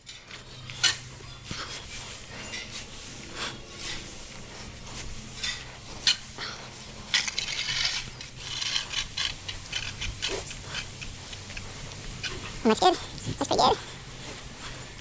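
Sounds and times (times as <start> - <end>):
hand tool scraping through bedding: 0.9 - 12.6.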